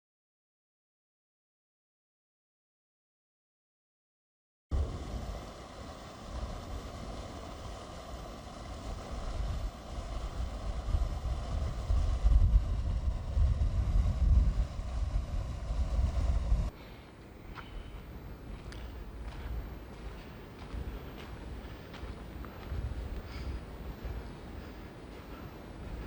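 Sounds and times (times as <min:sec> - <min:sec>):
wind buffeting microphone: 0:04.7 - 0:16.8, 0:17.4 - 0:26.0.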